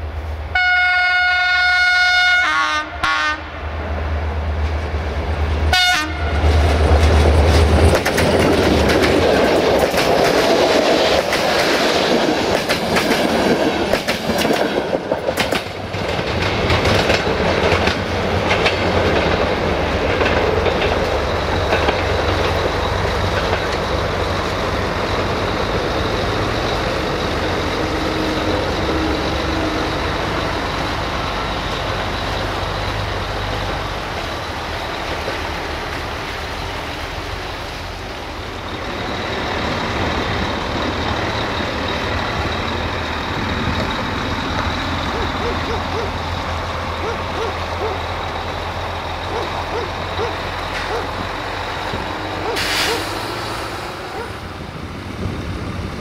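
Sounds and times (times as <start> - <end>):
locomotive engine rumbling: 0.0 - 56.0
train horn blast: 0.5 - 3.7, 5.7 - 6.6
train wheels clattering over rail joints: 6.4 - 36.3, 38.6 - 54.4.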